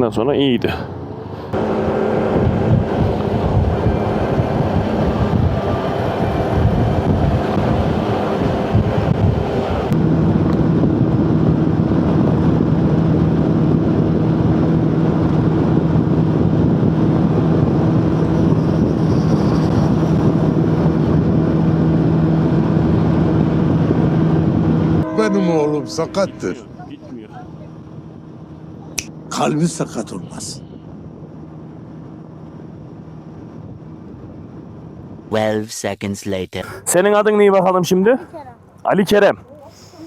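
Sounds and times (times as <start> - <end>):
wind noise on microphone: 1.1 - 29.3, 30.3 - 35.6.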